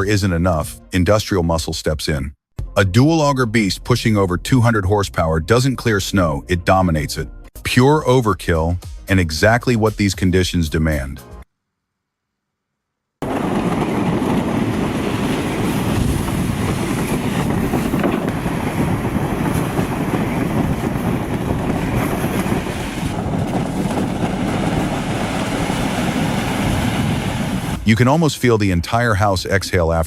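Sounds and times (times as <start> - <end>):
rushing churning noise: 13.2 - 28.1.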